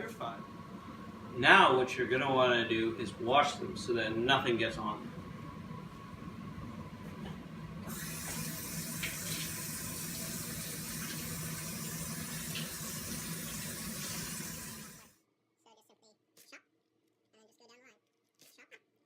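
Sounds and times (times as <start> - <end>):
tap water running into sink: 7.8 - 15.1.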